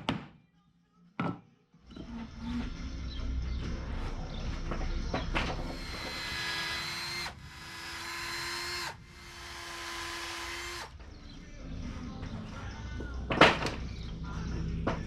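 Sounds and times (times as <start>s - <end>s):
electric drill running: 5.7s - 10.9s.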